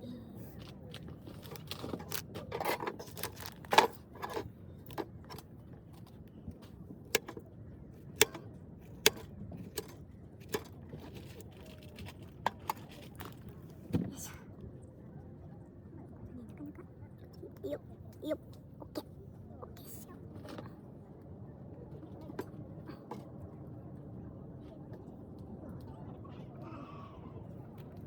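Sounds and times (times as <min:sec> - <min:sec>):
clicks of small hard objects: 0:00.6 - 0:06.1.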